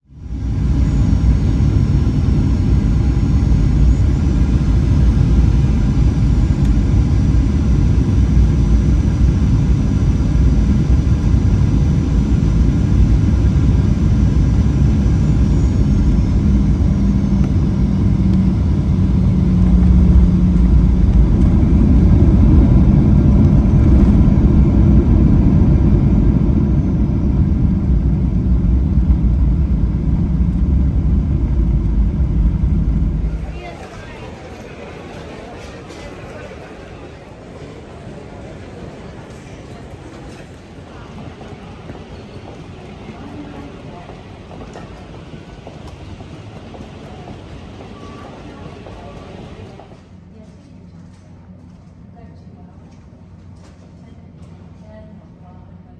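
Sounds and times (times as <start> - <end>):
faint high whine: 0.1 - 49.9
vehicle rumbling: 0.4 - 34.1.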